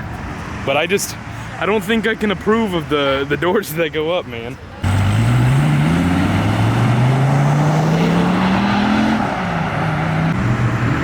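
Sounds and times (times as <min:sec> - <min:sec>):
car engine accelerating hard: 0:04.8 - 0:11.0.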